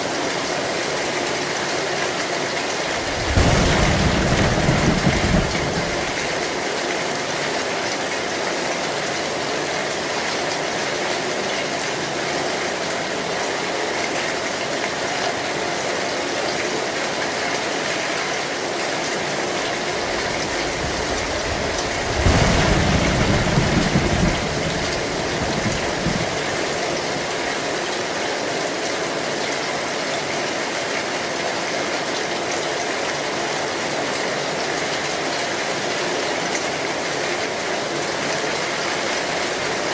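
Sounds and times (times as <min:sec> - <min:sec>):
heavy rain on a metal roof: 0:00.0 - 0:39.9
thunder rumble: 0:02.8 - 0:06.5, 0:19.6 - 0:27.4.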